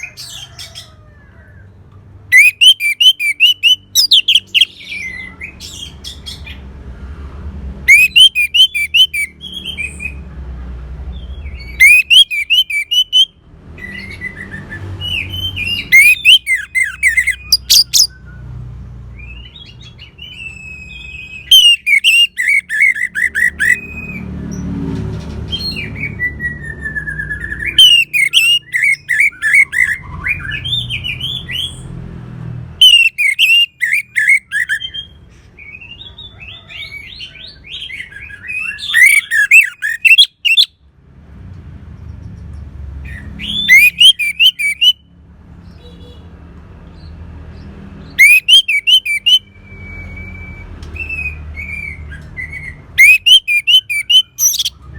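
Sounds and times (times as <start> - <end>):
thrush singing: 11.7 - 13.3, 15.2 - 18.1, 48.2 - 49.5, 53.0 - 54.9.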